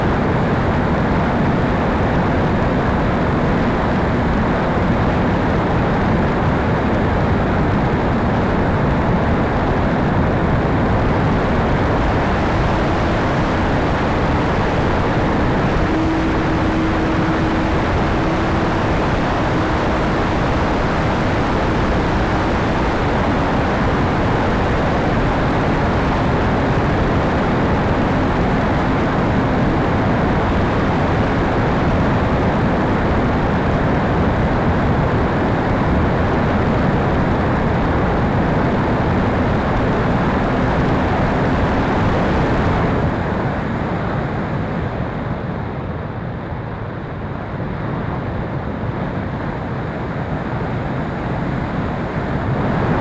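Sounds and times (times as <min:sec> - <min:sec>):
faint steady hum: 0:00.0 - 0:43.6, 0:49.3 - 0:53.0
rushing air noise: 0:07.9 - 0:43.2, 0:51.0 - 0:53.0.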